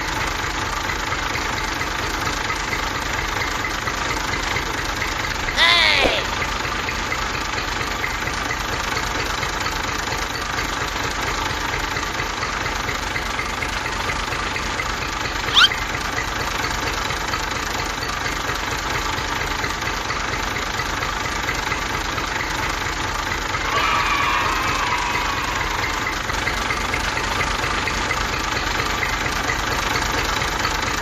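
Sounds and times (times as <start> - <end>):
tractor engine idling with knocking: 0.0 - 5.6, 6.2 - 31.0
short rising chirp: 15.5 - 15.8.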